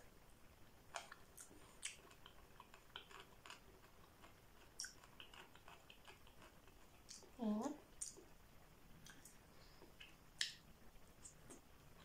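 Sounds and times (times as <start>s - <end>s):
chewing with wet mouth clicks: 0.9s - 7.4s, 8.0s - 8.3s, 9.0s - 10.6s.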